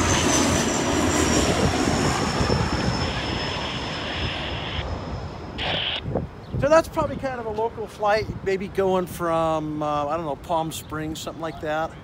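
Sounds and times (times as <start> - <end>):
high engine whine: 0.0 - 6.2
propeller plane passing overhead: 0.0 - 6.4.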